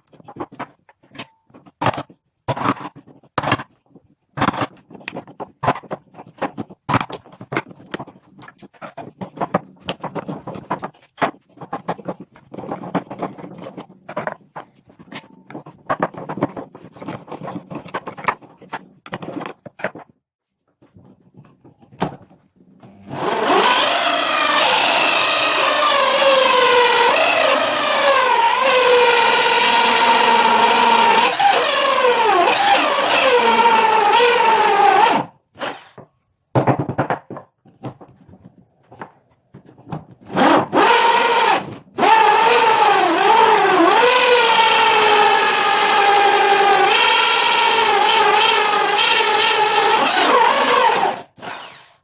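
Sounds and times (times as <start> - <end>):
scraping and knocking on wood: 0.0 - 23.0, 36.0 - 40.6
small electric power tool running: 22.9 - 35.8, 40.8 - 52.0.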